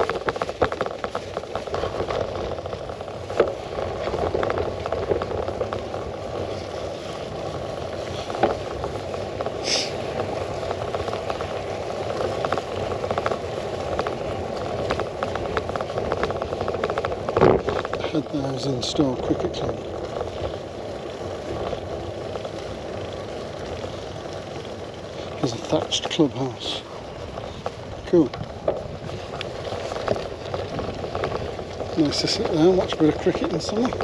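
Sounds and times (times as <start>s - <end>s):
bike knocks and rattles: 0.0s - 26.6s, 27.2s - 34.0s
rumble of tyres and wind: 0.0s - 34.0s.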